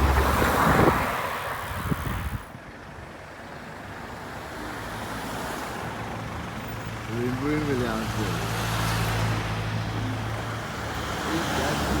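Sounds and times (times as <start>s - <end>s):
wind buffeting microphone: 0.0s - 2.6s
road noise: 0.0s - 12.0s.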